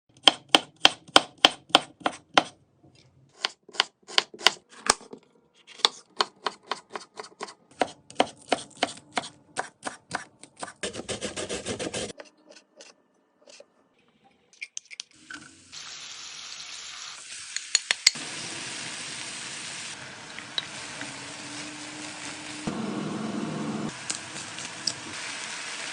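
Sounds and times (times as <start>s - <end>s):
knife chopping on cutting board: 0.2s - 2.6s, 5.8s - 12.1s.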